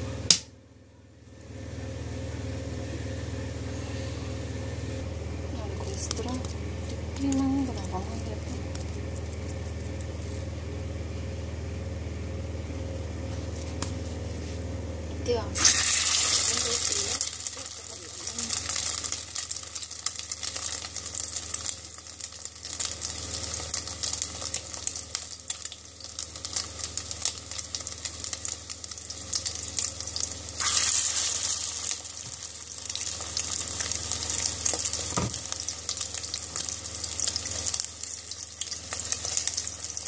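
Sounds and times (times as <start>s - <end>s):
patty sizzling in hot oil: 15.6s - 40.0s.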